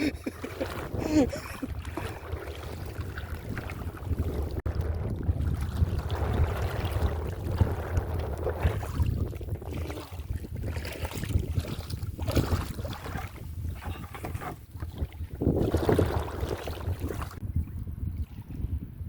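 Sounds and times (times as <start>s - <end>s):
faint open water: 0.0s - 19.0s
wind buffeting microphone: 0.0s - 19.0s.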